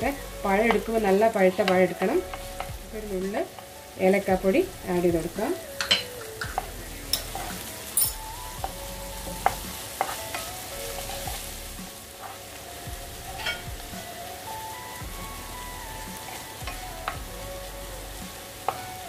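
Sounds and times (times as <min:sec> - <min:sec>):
banana frying in a pan: 0:00.0 - 0:19.0
spatula tapping and scraping pan: 0:00.6 - 0:01.0, 0:01.6 - 0:02.8, 0:05.8 - 0:08.8, 0:09.4 - 0:11.4.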